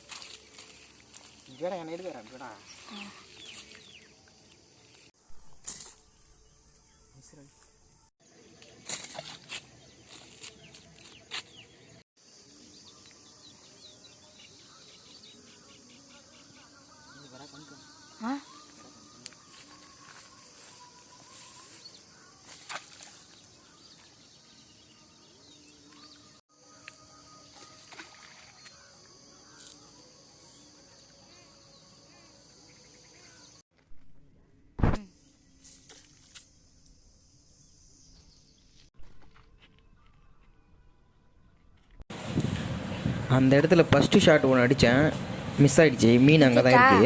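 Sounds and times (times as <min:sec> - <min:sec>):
small birds chirping: 0:00.7 - 0:05.1
high insect drone: 0:12.2 - 0:33.6, 0:35.1 - 0:38.6
steady high hiss: 0:42.1 - 0:47.0.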